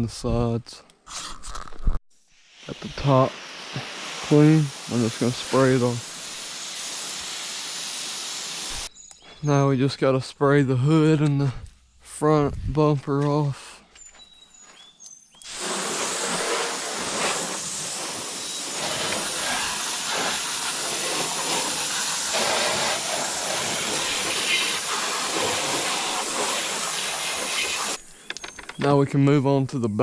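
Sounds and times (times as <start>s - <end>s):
hose water spraying on car: 2.4s - 8.9s, 15.5s - 28.0s.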